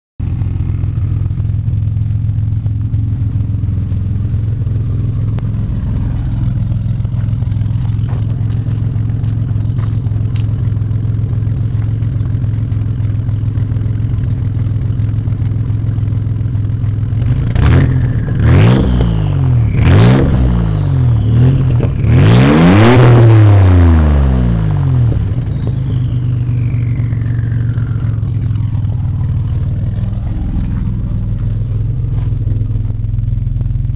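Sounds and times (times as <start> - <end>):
car engine idling and revving: 0.2 - 33.9.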